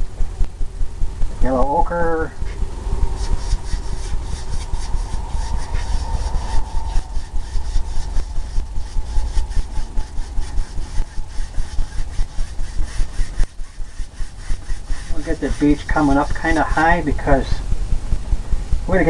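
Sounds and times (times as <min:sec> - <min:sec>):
paint brush scratching on canvas: 0:02.5 - 0:17.5.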